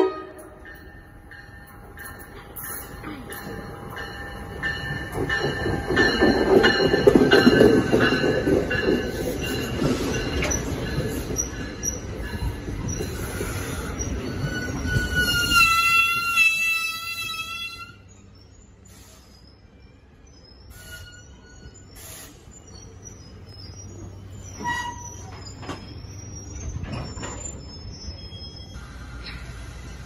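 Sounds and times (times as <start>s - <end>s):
train rumbling past: 0.0s - 30.0s
wheels clicking over rails: 2.1s - 15.4s
high wheel squeal: 9.2s - 18.0s, 20.7s - 30.0s.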